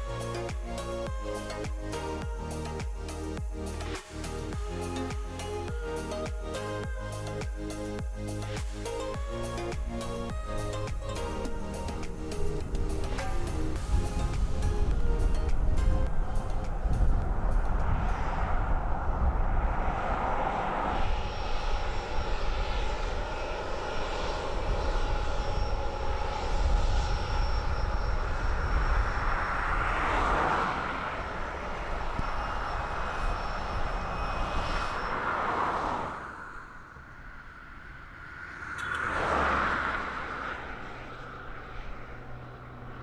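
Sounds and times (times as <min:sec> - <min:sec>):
jet engines rumbling and whining: 0:00.0 - 0:43.0.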